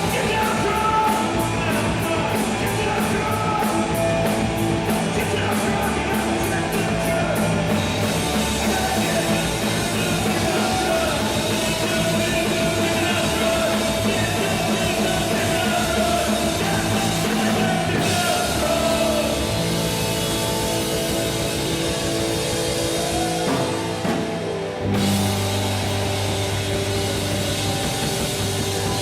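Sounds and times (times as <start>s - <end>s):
bass guitar: 0.0s - 29.0s
distorted electric guitar: 0.0s - 29.0s
drum kit: 0.0s - 29.0s.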